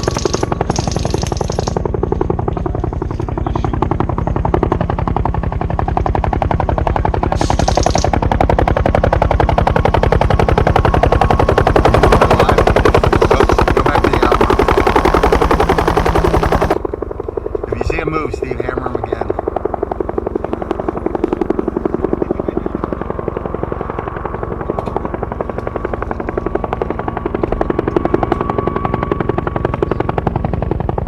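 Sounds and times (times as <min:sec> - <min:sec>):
rapid airsoft gun fire: 0:07.4 - 0:08.2.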